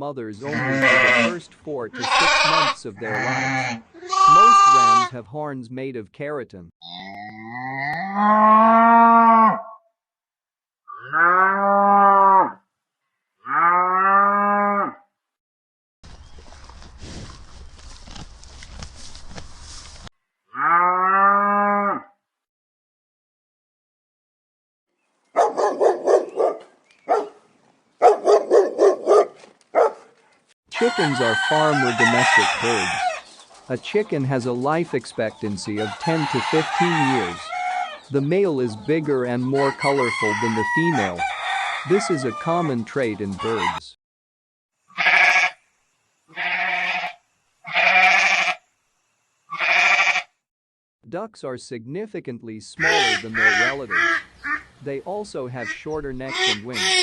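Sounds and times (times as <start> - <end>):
farm animal bleating: 0.4 - 5.2, 30.8 - 33.2, 35.7 - 38.0, 44.9 - 45.6, 46.3 - 48.6, 49.5 - 50.4, 52.8 - 54.7, 55.6 - 57.0
dog barking: 25.4 - 27.4, 28.0 - 30.2.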